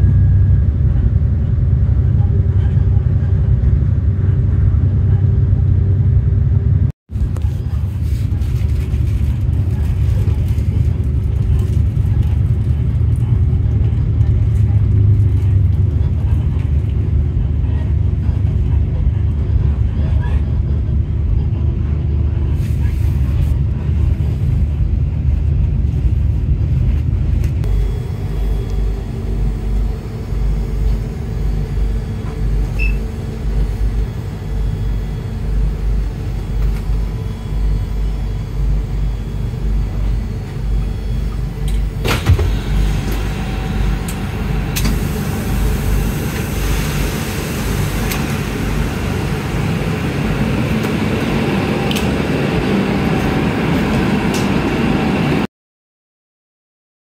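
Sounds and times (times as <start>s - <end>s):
railcar engine rumble: 0.0s - 55.4s.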